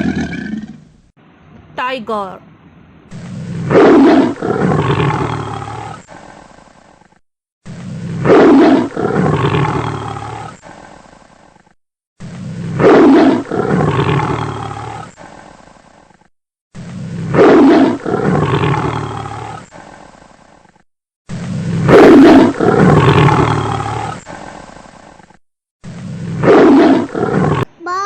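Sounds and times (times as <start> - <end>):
tiger roaring: 0.0 - 0.8, 3.1 - 6.4, 7.9 - 11.0, 12.2 - 15.4, 16.8 - 20.1, 21.7 - 24.5, 26.2 - 27.7.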